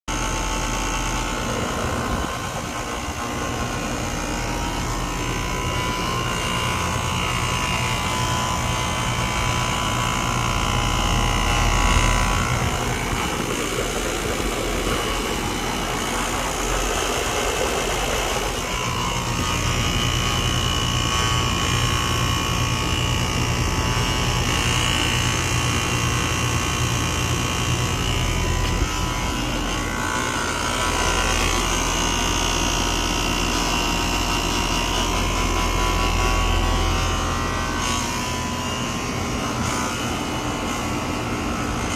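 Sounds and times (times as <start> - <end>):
air conditioner compressor humming: 0.1 - 41.9.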